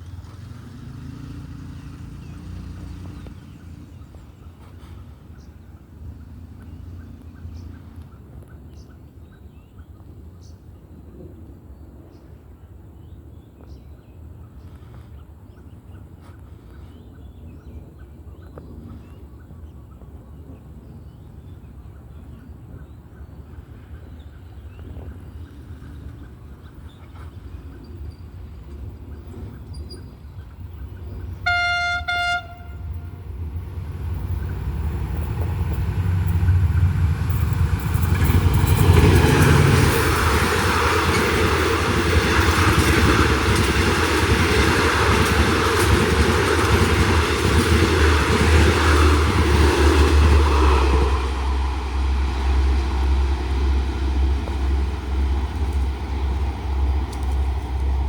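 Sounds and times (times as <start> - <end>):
train passing rumble: 0.0 - 58.0
train horn blast: 31.4 - 33.3
wheels clicking over rail joints: 33.4 - 58.0.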